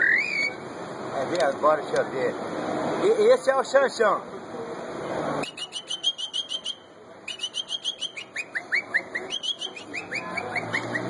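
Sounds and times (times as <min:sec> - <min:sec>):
man whistling birdsong imitation: 0:00.0 - 0:00.6, 0:05.4 - 0:11.0.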